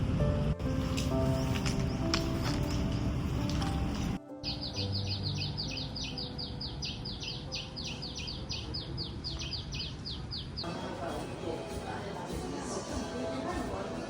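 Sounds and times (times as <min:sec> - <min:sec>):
bird chirping rapidly: 0:04.4 - 0:10.7.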